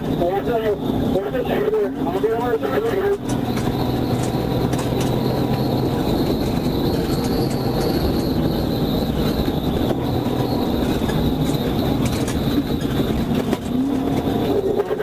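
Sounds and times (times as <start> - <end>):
heavy vehicle rumbling: 0.0 - 15.0
road noise: 0.0 - 15.0.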